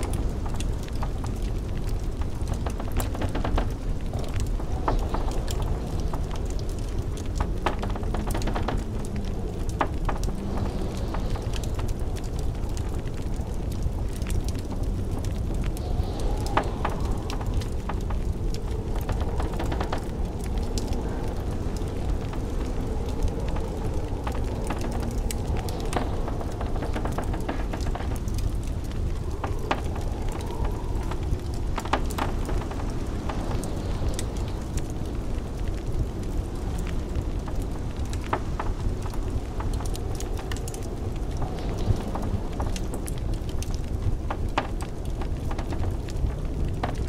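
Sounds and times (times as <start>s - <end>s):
blizzard wind rushing: 0.0s - 47.0s
wood fire crackling: 0.0s - 47.0s.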